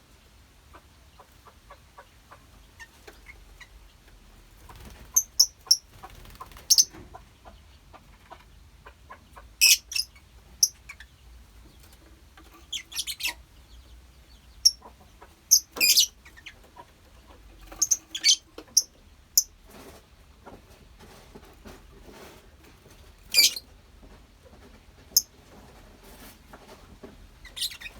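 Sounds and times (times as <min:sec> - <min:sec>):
lovebirds chirping and squawking: 0:04.6 - 0:08.4, 0:09.1 - 0:19.5, 0:23.2 - 0:23.7, 0:27.4 - 0:27.9.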